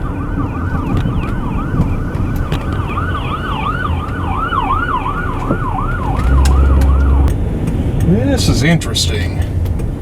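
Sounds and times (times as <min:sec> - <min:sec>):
siren fast yelp: 0:00.0 - 0:07.3
vehicle road noise: 0:00.0 - 0:10.0.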